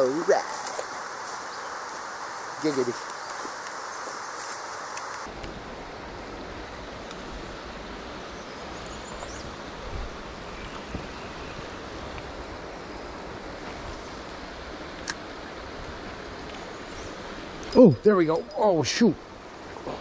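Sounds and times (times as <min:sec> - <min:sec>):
river rushing over rocks: 0:00.0 - 0:06.4.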